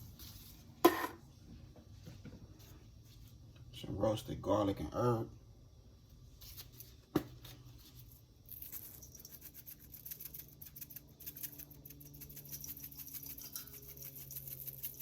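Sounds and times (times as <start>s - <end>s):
seasoning rattling from shaker: 7.7s - 15.0s.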